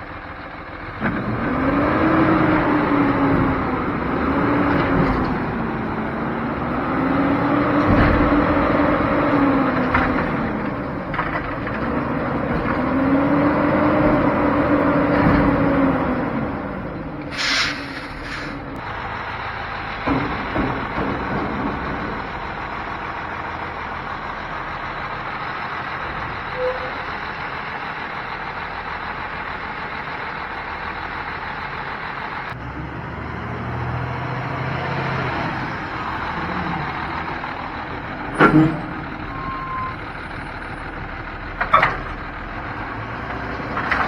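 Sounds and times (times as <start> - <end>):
heavy truck engine running: 0.0 - 44.0
air brake hiss: 17.3 - 18.8.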